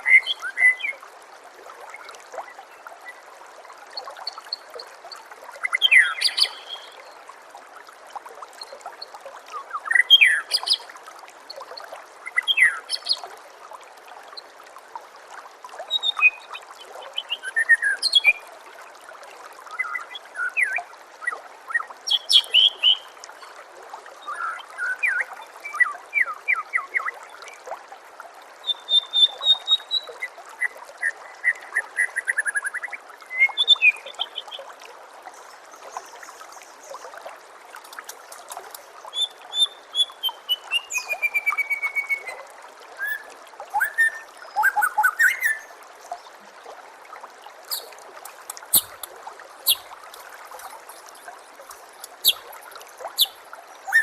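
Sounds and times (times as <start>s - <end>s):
trickling water: 0.0s - 54.0s
bird singing whistles and trills: 15.9s - 16.5s, 28.6s - 30.2s, 39.1s - 42.4s, 43.0s - 45.7s, 47.7s - 47.9s, 49.6s - 49.9s, 52.2s - 52.4s, 53.2s - 54.0s.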